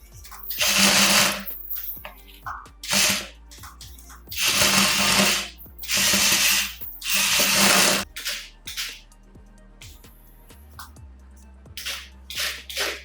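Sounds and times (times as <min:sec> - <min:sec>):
toy motor ratcheting whirr: 0:00.2 - 0:02.0, 0:02.8 - 0:09.0, 0:11.8 - 0:13.0.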